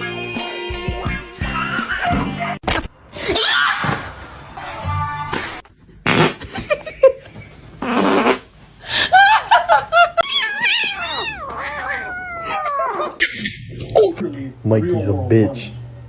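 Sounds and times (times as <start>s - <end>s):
cat meowing: 10.2s - 13.2s.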